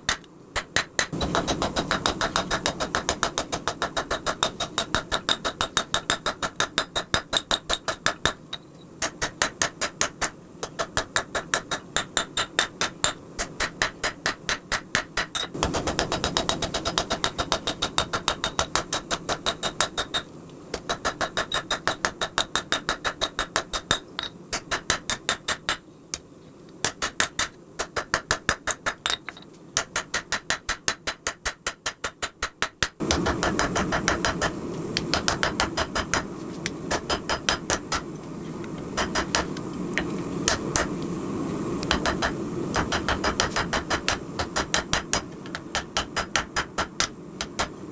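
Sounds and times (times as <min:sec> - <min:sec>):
steady rushing noise: 0:01.0 - 0:06.2, 0:15.5 - 0:20.2, 0:33.0 - 0:47.9.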